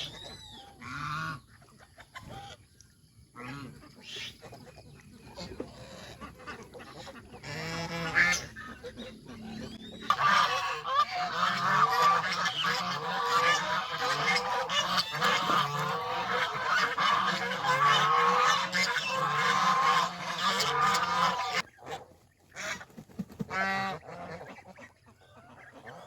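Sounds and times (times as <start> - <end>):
geese honking: 0.0 - 1.5, 5.4 - 22.9, 23.5 - 26.0.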